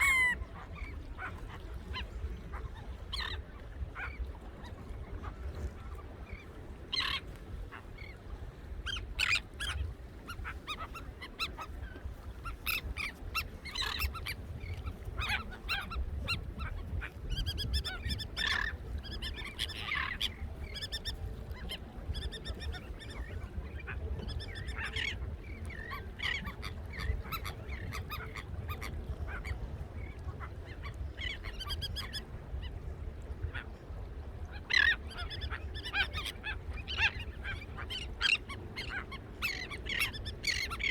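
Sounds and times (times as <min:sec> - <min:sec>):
flock of birds calling: 0:08.8 - 0:32.8, 0:34.6 - 0:40.9.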